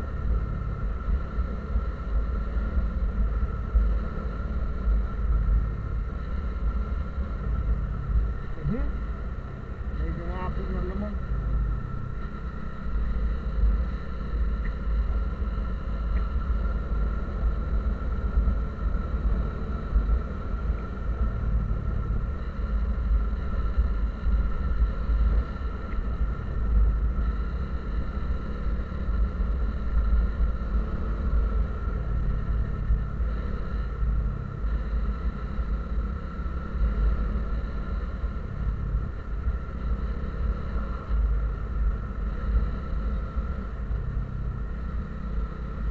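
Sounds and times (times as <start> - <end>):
vehicle engine and road noise: 0.0 - 45.9.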